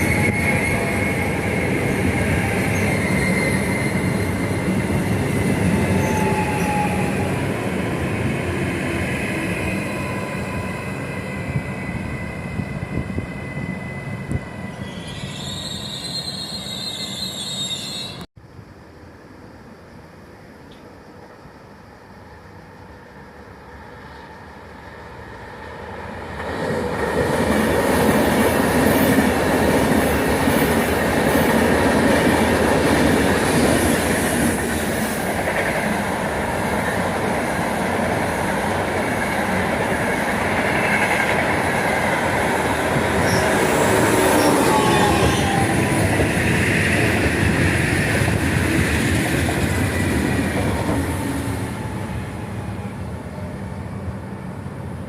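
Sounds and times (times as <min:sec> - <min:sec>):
faint thin squeal: 0:02.4 - 0:04.2, 0:14.7 - 0:18.3, 0:43.2 - 0:46.0
train rumble: 0:20.2 - 0:55.0.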